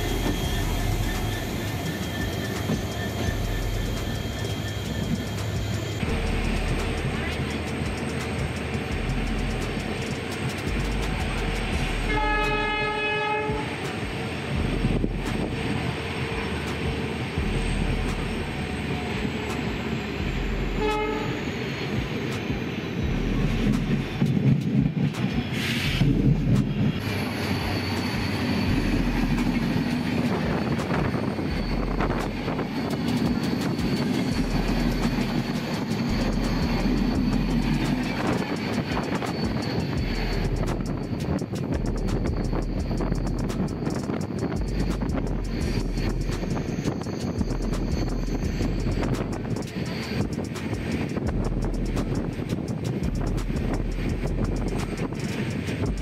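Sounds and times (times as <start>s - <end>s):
train wheels clickety-clack: 0.0s - 56.0s
train horn: 12.0s - 13.8s, 20.8s - 21.5s.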